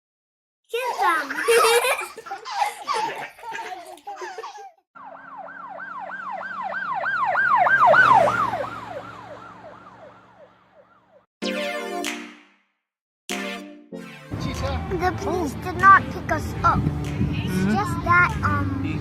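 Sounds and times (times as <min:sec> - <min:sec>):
children laughing: 0:00.7 - 0:04.8
emergency siren yelping: 0:05.0 - 0:11.2.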